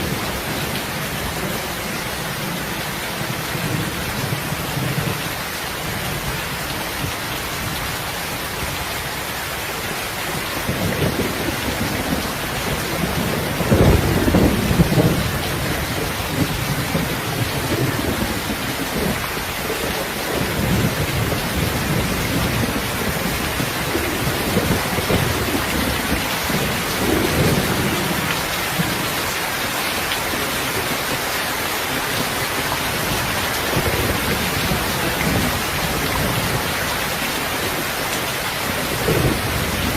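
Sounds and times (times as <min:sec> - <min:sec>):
steady rain: 0:00.0 - 0:39.9
rumbling thunder: 0:10.6 - 0:29.3, 0:32.1 - 0:37.0, 0:38.7 - 0:39.9.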